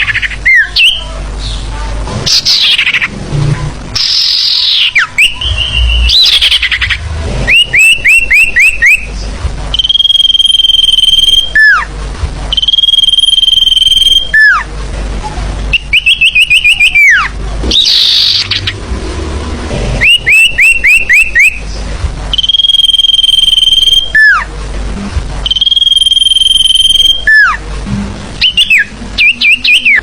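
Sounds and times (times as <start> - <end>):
harsh bird call: 4.0 - 9.1, 15.8 - 18.8, 20.0 - 21.6
quick rising whistled bird notes: 4.0 - 9.1, 20.0 - 21.6.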